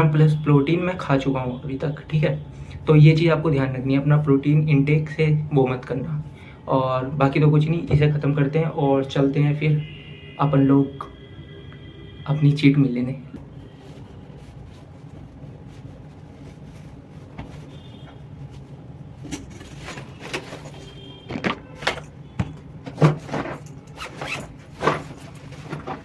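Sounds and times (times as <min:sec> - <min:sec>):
rustling handling noises: 0:13.3 - 0:26.0.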